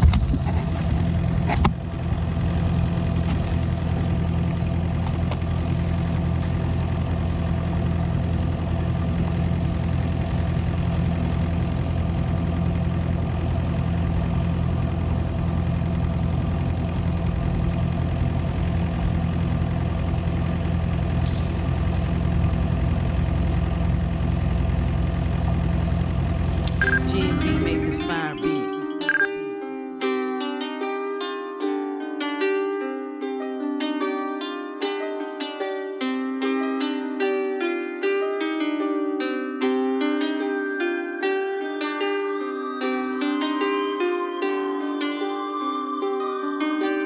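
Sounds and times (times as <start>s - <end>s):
excavator diesel engine idling: 0.0s - 29.3s.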